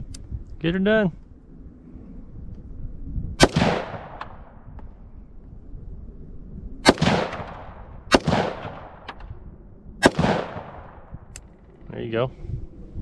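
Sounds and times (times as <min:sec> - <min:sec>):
gunshots with echo: 0:03.4 - 0:04.6, 0:06.8 - 0:09.2, 0:10.0 - 0:11.3.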